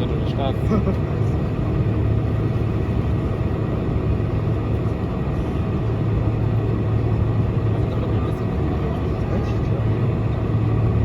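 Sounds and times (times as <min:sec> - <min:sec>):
aircraft cabin engine rumble: 0:00.0 - 0:11.0
constant low hum: 0:00.0 - 0:11.0.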